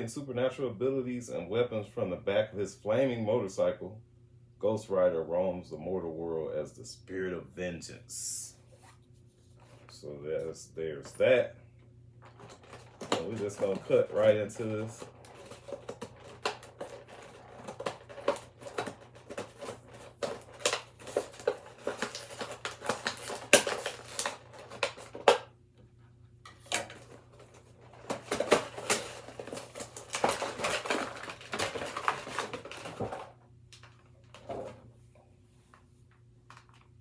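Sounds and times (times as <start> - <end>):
plastic packaging crinkling: 12.2 - 25.5, 26.5 - 34.5, 36.4 - 37.0.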